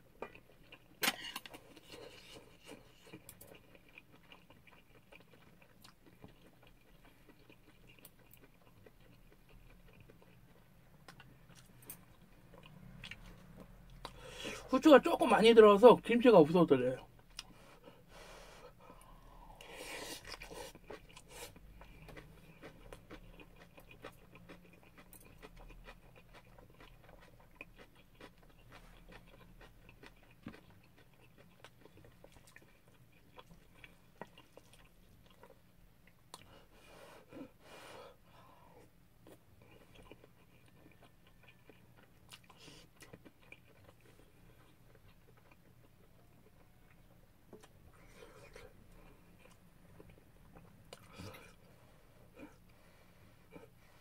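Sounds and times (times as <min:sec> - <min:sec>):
faint chewing: 0:00.0 - 0:14.7, 0:17.0 - 0:54.0.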